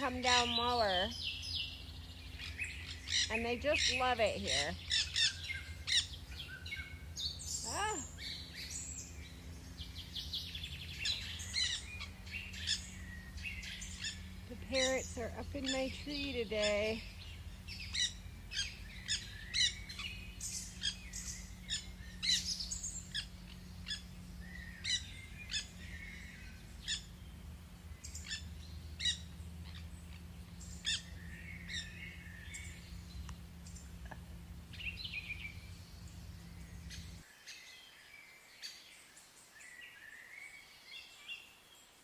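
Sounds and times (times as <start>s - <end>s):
parrots squawking and chirping: 0.0s - 1.3s, 2.3s - 8.2s, 11.0s - 27.2s, 28.1s - 32.6s
steady low hum: 0.0s - 37.3s.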